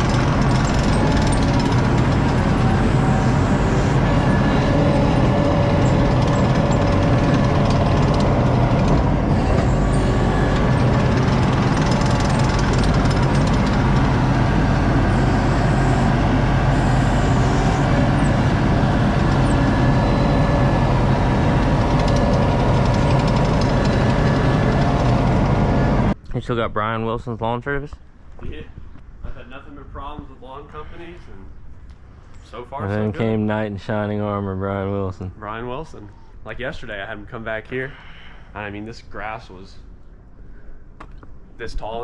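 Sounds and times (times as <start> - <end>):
diesel engine drone: 0.0 - 26.2
machine clatter: 0.0 - 26.2.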